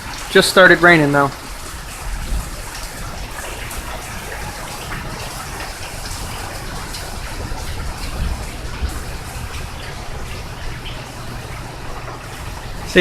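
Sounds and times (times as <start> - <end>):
rain falling: 0.0 - 13.0
water splashing and running: 0.0 - 13.0.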